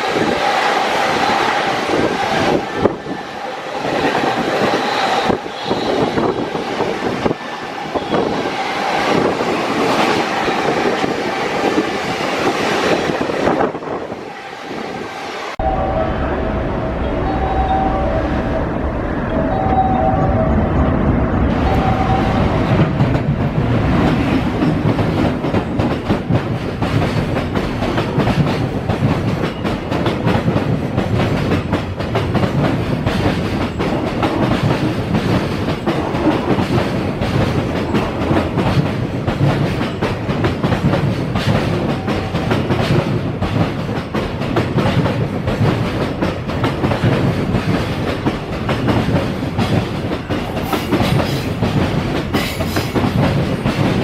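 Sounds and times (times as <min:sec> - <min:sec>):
train rumble: 0:00.0 - 0:54.0
freight train wheels clattering: 0:21.6 - 0:54.0.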